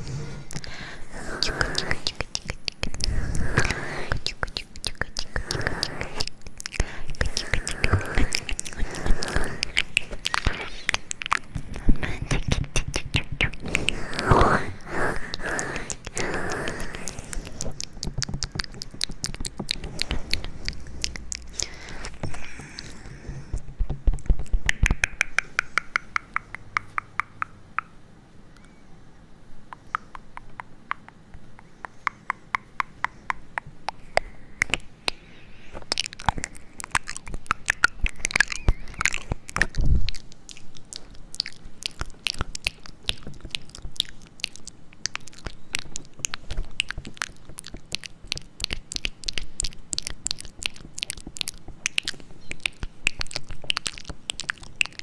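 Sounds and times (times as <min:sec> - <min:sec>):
crisp clicks and crunches: 0:33.9 - 0:55.0.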